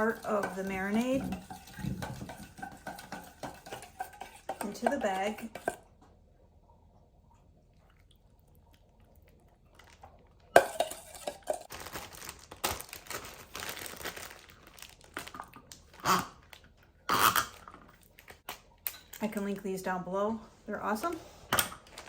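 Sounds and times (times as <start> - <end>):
plastic bag crinkling and rustling: 11.5 - 16.9, 21.7 - 22.0.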